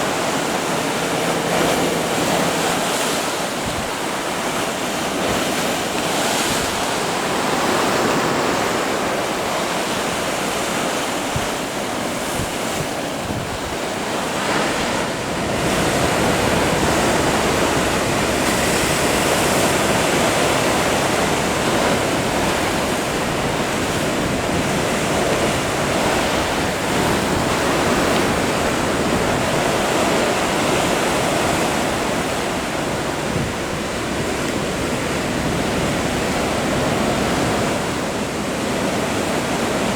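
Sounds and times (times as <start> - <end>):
ocean waves crashing: 0.0 - 39.9
wind buffeting microphone: 0.0 - 39.9.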